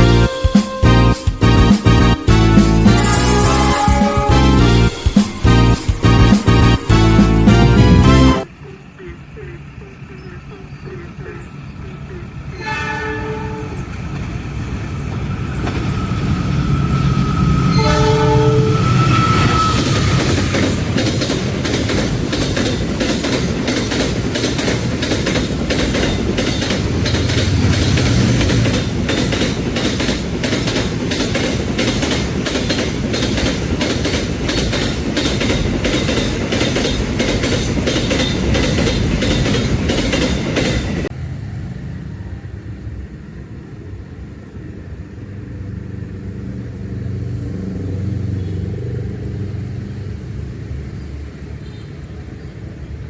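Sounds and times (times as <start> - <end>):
locomotive horn blasts: 0.0 - 8.5, 12.5 - 13.8, 17.0 - 20.6
train wheels clattering over rail joints: 19.5 - 41.1.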